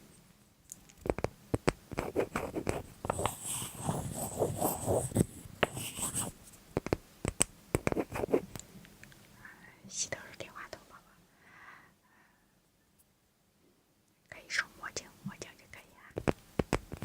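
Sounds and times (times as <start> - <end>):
scratchy rustling: 1.0 - 7.0, 7.8 - 8.5, 16.2 - 17.0
sharp handling clicks and taps: 6.8 - 8.0.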